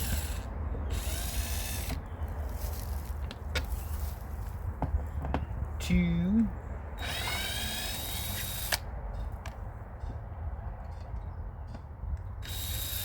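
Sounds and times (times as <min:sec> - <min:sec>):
power drill motor whining: 0:00.0 - 0:02.0, 0:07.0 - 0:08.8, 0:12.4 - 0:13.0.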